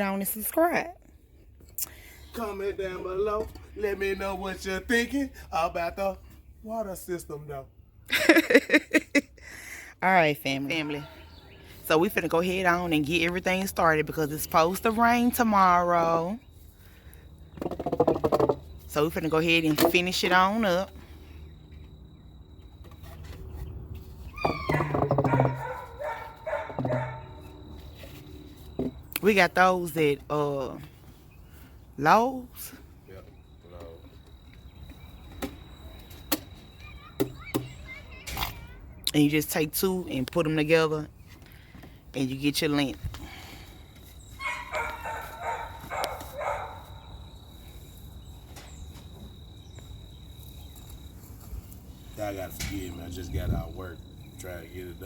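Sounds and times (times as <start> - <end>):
high insect trill: 11.2 - 30.9, 31.5 - 41.0, 42.1 - 55.0
pet animal crying out: 24.3 - 27.4
dog barking: 24.7 - 27.4, 44.4 - 47.0.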